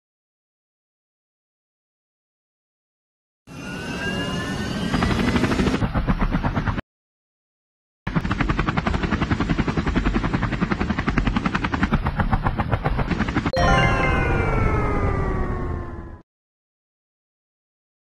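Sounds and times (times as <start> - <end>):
helicopter rotor chopping: 5.0 - 6.8, 8.1 - 13.5.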